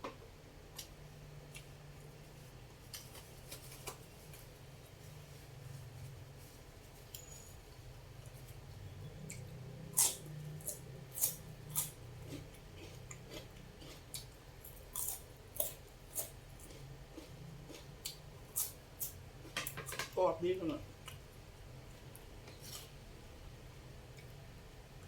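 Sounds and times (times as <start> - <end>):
low steady hum: 0.0 - 25.0
crunchy food chewing: 9.2 - 19.6.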